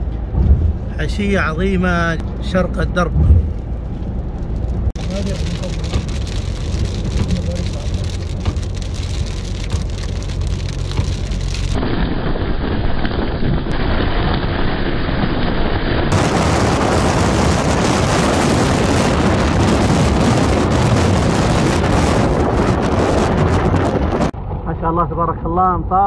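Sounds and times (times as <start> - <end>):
car driving on a wet road: 2.2 - 25.2
heavy rain pouring: 4.6 - 24.4.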